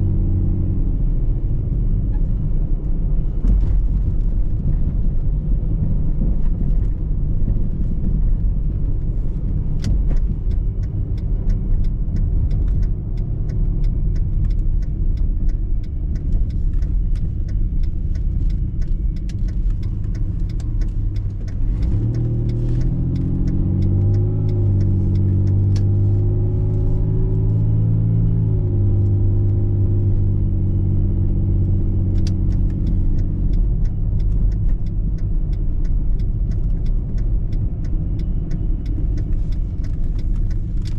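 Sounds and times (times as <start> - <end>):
car road noise rumble: 0.0 - 40.9
engine and drivetrain hum: 0.0 - 40.9
faint ticks: 9.8 - 27.6, 32.2 - 40.9.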